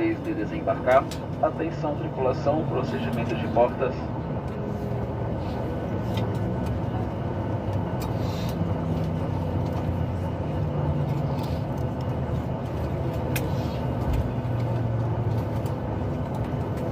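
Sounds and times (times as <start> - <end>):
airplane cabin hum: 0.0 - 16.9.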